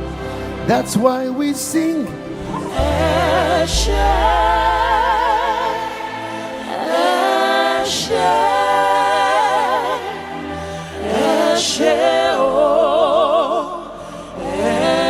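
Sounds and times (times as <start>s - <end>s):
voices singing gospel: 0.0s - 15.0s
sustained low bass notes: 2.4s - 6.3s.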